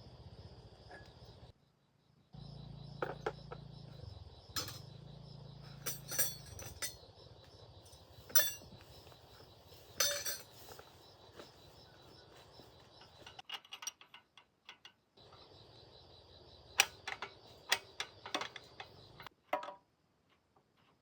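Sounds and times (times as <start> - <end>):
metal tools clinking: 4.6 - 4.9, 5.6 - 7.1, 7.9 - 10.8, 13.0 - 14.9.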